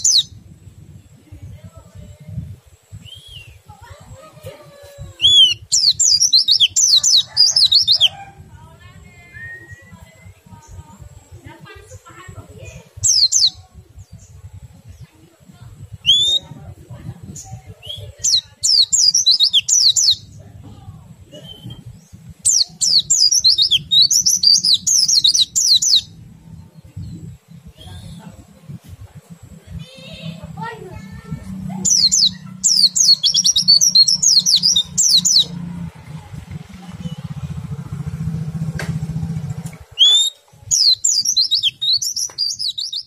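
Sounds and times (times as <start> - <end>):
bird singing falling chirps: 0.0 - 0.4, 5.0 - 8.2, 8.9 - 15.1, 15.9 - 16.6, 17.3 - 28.7, 31.5 - 35.8, 39.8 - 43.0
low pulsing buzz: 0.0 - 41.3
faint low rumble: 0.0 - 43.0
bird rising whistle: 5.2 - 8.1, 16.0 - 16.4, 40.0 - 43.0.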